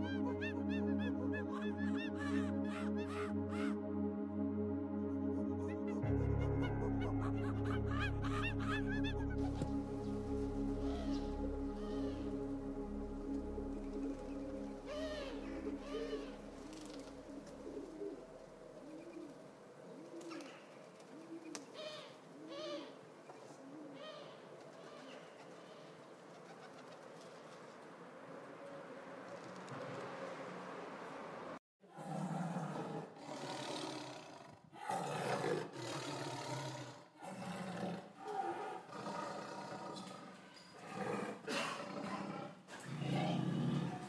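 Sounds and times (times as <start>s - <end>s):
lion roaring: 31.9s - 44.0s.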